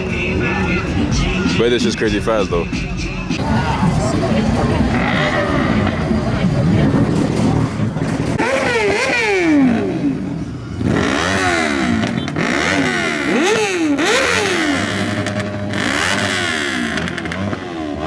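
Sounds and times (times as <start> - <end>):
engine revving hard: 3.4 - 18.0.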